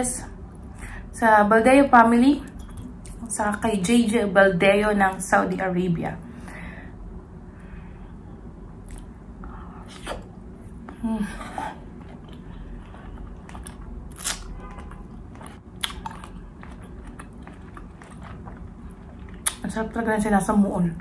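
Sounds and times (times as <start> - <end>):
person chewing steak: 11.7 - 19.6.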